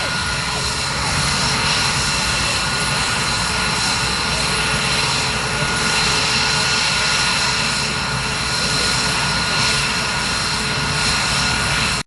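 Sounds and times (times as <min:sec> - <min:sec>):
aircraft engine whine: 0:00.0 - 0:12.0.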